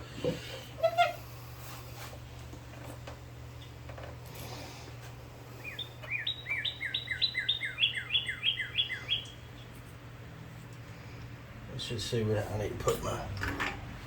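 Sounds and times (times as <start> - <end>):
steady low hum: 0.0 - 14.0
songbird singing down-slurred notes: 5.6 - 9.7.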